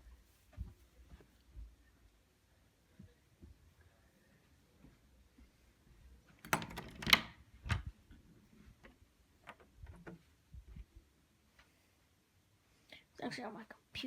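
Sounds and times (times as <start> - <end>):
loud clicks and knocks: 6.4 - 7.3.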